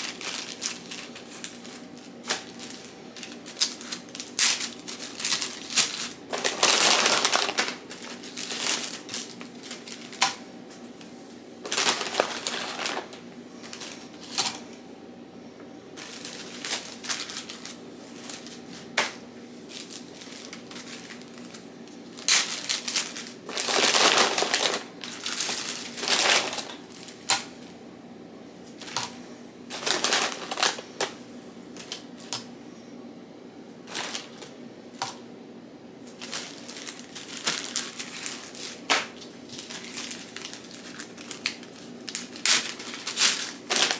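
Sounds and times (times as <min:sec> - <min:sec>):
rustling and scraping: 0:00.0 - 0:14.8, 0:16.0 - 0:27.4
faint steady hum: 0:00.0 - 0:43.9.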